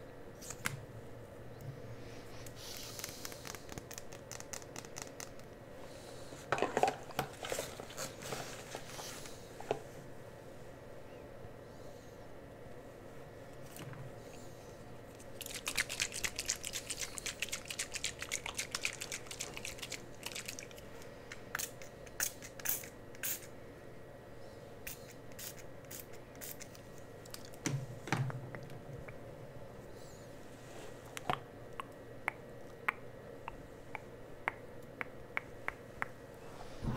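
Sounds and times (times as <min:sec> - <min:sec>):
rapid crisp clicks and crackles: 0:02.4 - 0:05.6, 0:15.1 - 0:23.5.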